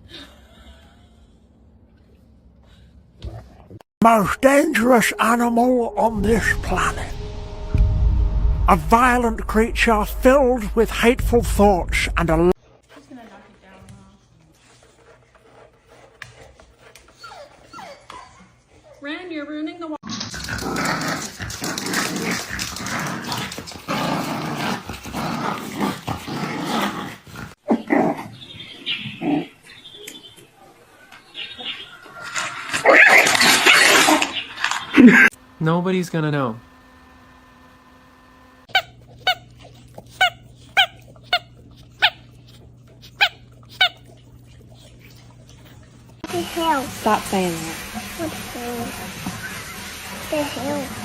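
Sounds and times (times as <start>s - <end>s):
noisy background: 4.0s - 12.6s
dog growling: 20.1s - 28.4s
dog yipping: 38.7s - 44.2s.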